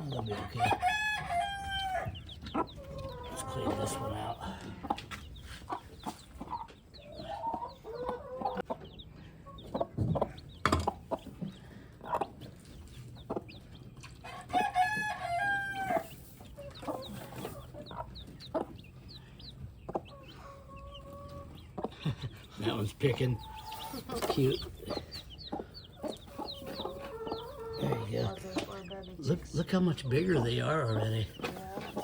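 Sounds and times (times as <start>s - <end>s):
baby chicks peeping: 0.0s - 32.0s
chickens clucking: 0.0s - 32.0s
rooster crowing: 0.3s - 2.2s, 14.3s - 16.1s.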